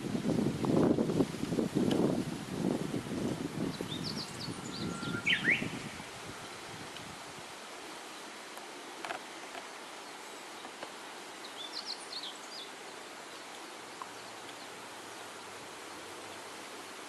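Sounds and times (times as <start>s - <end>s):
outdoor background hiss: 0.0s - 17.0s
short high bird chirps: 4.0s - 6.0s.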